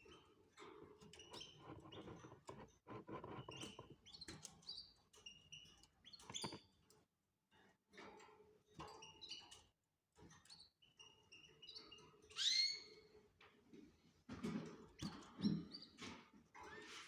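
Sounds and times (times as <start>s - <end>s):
canaries chirping: 1.2s - 6.6s, 11.0s - 13.2s.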